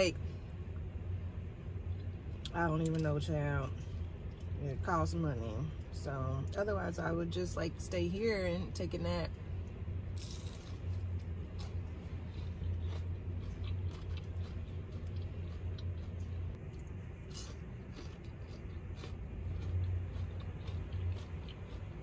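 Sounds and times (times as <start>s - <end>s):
steady low hum: 0.0s - 22.0s
chewing crispy hash browns: 9.6s - 22.0s.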